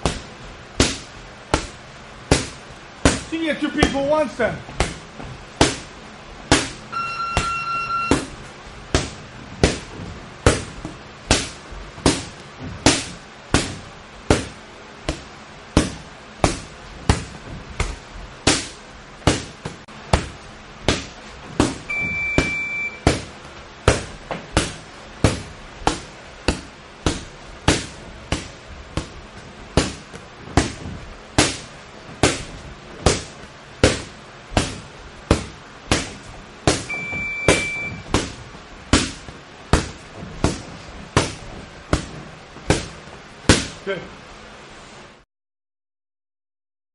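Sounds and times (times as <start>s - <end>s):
gloved punches landing: 0.0s - 4.1s, 4.7s - 43.8s
timer buzzer beep: 6.9s - 8.2s, 21.9s - 23.0s, 36.9s - 38.0s.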